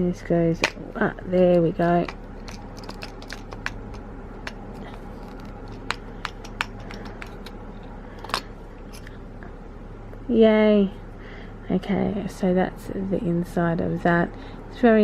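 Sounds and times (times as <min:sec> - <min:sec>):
steady low hum: 0:00.0 - 0:15.0
grinder parts clicking: 0:01.4 - 0:07.6.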